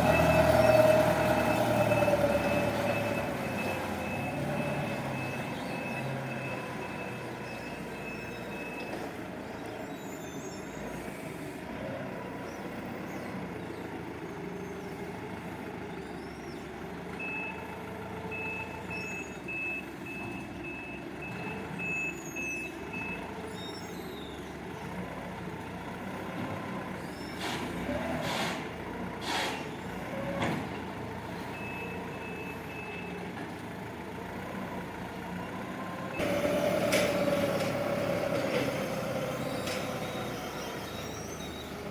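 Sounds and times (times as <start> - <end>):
forklift engine hum: 0.0 - 41.9
reversing alarm beeps: 0.1 - 9.0, 17.2 - 17.6, 18.3 - 23.9, 31.5 - 33.2, 39.5 - 41.9.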